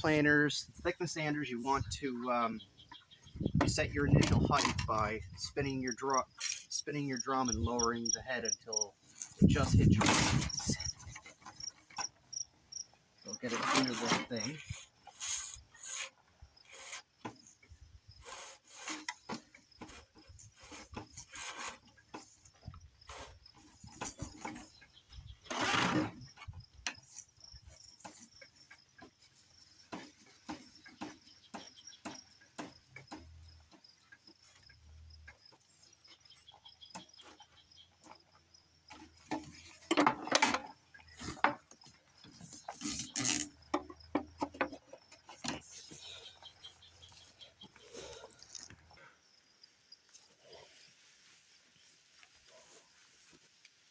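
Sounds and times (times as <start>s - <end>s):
sandpaper rasping against wood: 13.5s - 17.1s, 18.2s - 19.1s, 20.6s - 21.8s.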